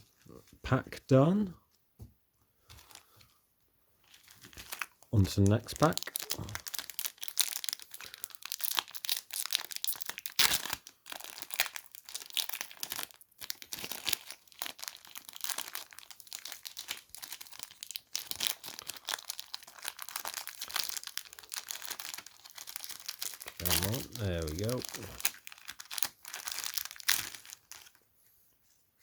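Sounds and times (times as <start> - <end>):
foil wrapper crinkling and tearing: 4.0 - 28.1.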